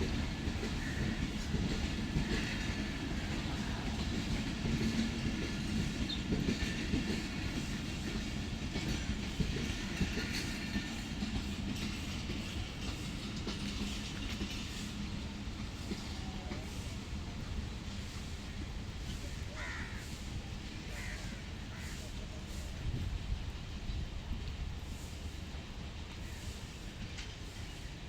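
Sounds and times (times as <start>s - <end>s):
train rumbling on rails: 0.0s - 28.0s.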